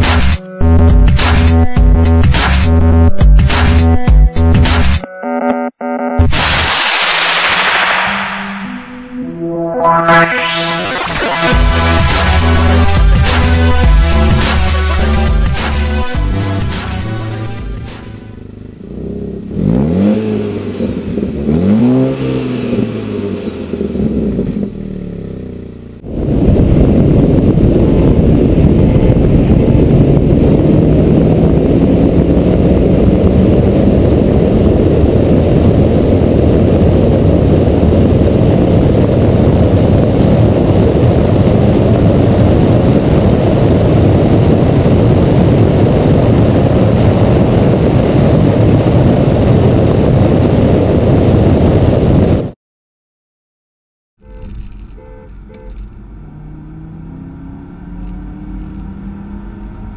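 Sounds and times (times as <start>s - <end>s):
engine drone: 0.0s - 52.4s, 54.2s - 59.9s
wind and road noise: 6.4s - 52.6s, 54.2s - 59.9s
car engine revving: 7.7s - 50.2s, 55.6s - 59.9s.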